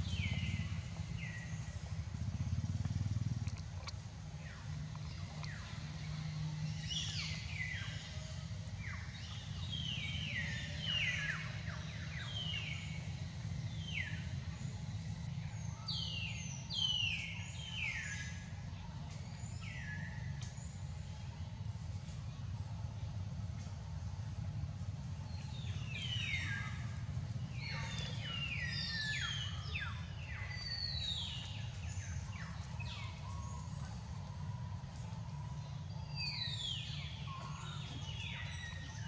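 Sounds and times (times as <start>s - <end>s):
birds chirping: 0.0s - 14.4s, 25.3s - 39.0s
steady low rumble: 0.0s - 15.8s, 18.4s - 39.0s.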